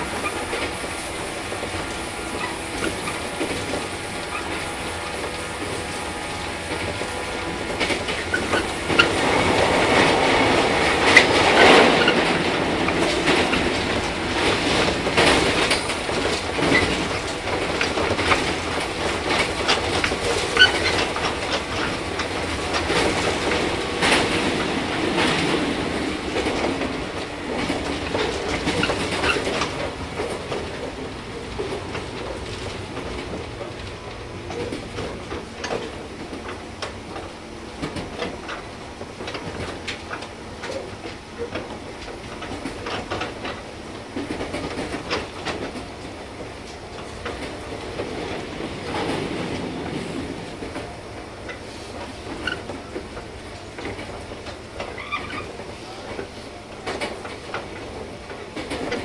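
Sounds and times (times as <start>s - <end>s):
high wheel squeaks: 0.0s - 12.4s, 14.8s - 22.2s, 54.8s - 56.1s
wheels clacking over rail joints: 0.0s - 59.0s.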